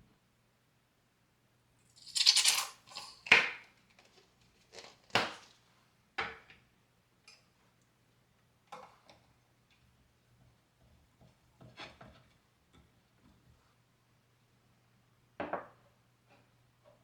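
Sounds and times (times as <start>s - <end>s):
small hard objects knocking: 2.0s - 5.5s.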